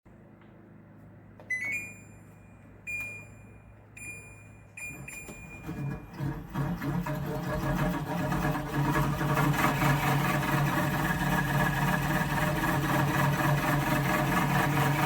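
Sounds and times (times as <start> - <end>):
electronic appliance beeps: 1.4 - 6.2
rough machine running: 5.6 - 15.0.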